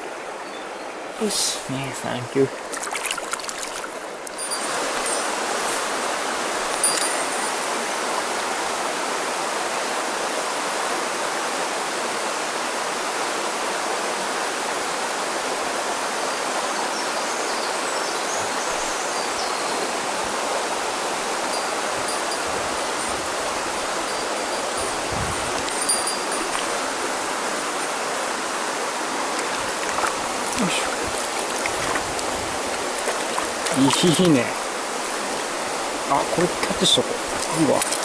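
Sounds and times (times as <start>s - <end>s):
stream water flowing: 0.0s - 38.0s.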